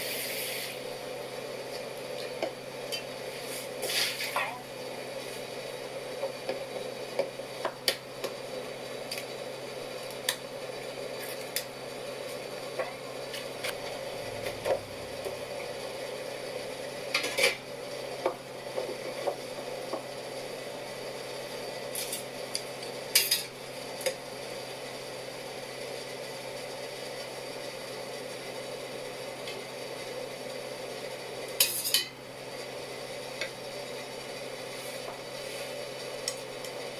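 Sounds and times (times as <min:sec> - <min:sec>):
steady background hum: 0:00.0 - 0:36.9.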